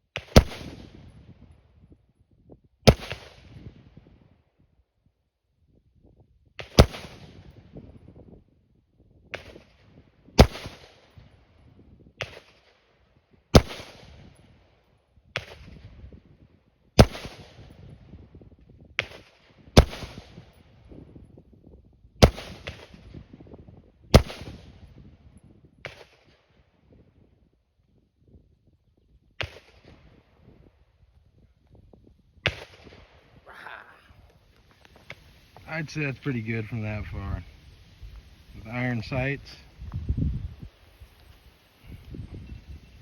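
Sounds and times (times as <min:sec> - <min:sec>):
rifle shots: 0:00.2 - 0:01.0, 0:02.9 - 0:03.5, 0:06.6 - 0:07.4, 0:10.4 - 0:11.0, 0:13.6 - 0:14.2, 0:17.0 - 0:17.7, 0:19.0 - 0:20.4, 0:24.1 - 0:24.7
faint distant gunshots: 0:00.2 - 0:01.1, 0:02.9 - 0:03.7, 0:06.6 - 0:07.6, 0:19.0 - 0:20.5, 0:22.2 - 0:23.4, 0:24.1 - 0:24.8, 0:29.4 - 0:30.3, 0:32.4 - 0:33.4.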